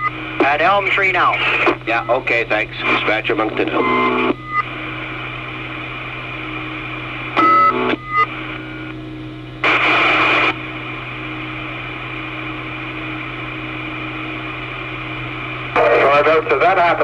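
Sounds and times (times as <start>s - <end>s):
burst of radio static: 0.0s - 4.8s, 9.6s - 10.6s, 15.6s - 17.0s
radio channel hiss: 0.0s - 6.1s, 9.6s - 14.7s, 15.4s - 17.0s
steady hum: 0.0s - 17.0s.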